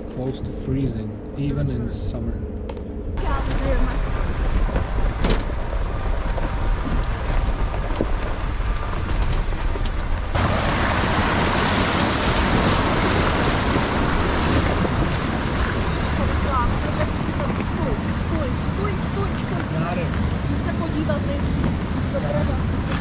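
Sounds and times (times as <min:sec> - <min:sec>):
truck engine and tyres rumbling: 0:00.0 - 0:23.0
loud hiss of wind or gravel: 0:04.0 - 0:16.6.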